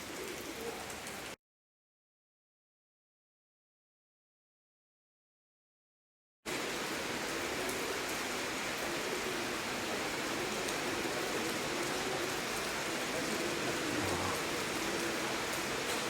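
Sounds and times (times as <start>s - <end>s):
heavy rain falling: 0.0s - 1.4s, 6.5s - 16.0s.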